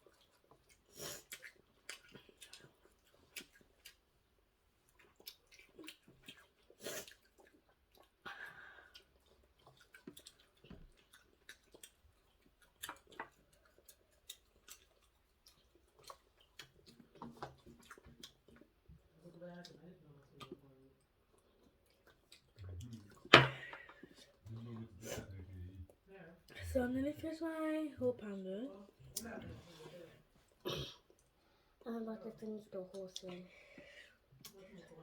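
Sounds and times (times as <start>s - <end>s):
child chewing: 0.0s - 26.0s, 28.8s - 35.0s.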